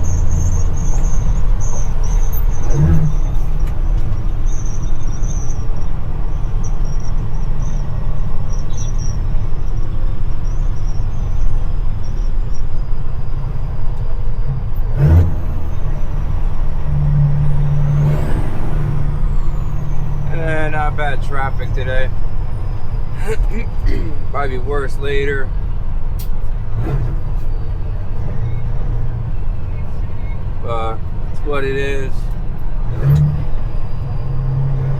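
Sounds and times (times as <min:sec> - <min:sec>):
diesel truck engine running: 0:00.0 - 0:34.9
high turbo whistle: 0:15.2 - 0:20.9.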